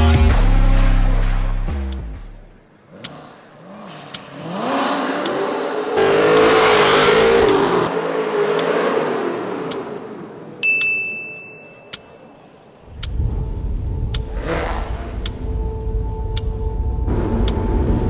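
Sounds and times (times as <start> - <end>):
car engine revving: 2.5 - 10.6, 14.1 - 15.6, 17.0 - 18.0
steady high-pitched beep: 10.6 - 12.4.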